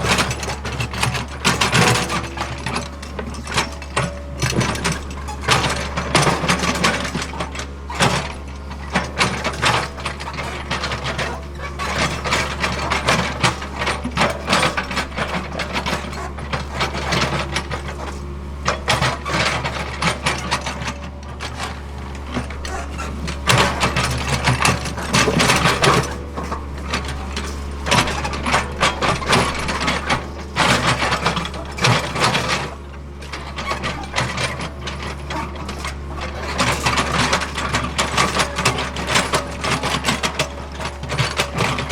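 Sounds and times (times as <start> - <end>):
excavator clanking and scraping: 0.0 - 41.9
excavator diesel engine drone: 0.0 - 41.9.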